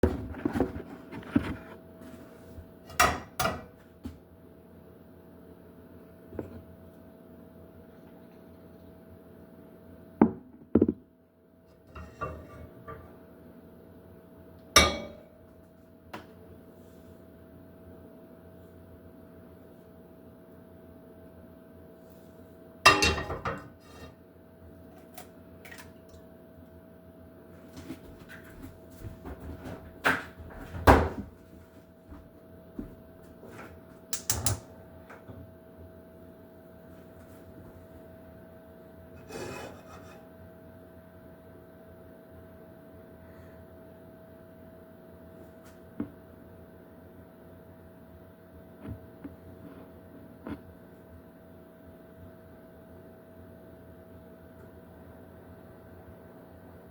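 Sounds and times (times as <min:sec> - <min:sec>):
faint steady hum: 0:00.0 - 0:56.9
kitchen knocks and clatters: 0:02.9 - 0:03.8, 0:10.2 - 0:11.1, 0:22.9 - 0:24.1, 0:34.2 - 0:34.7
pans and utensils knocking: 0:14.8 - 0:15.2, 0:22.9 - 0:23.7.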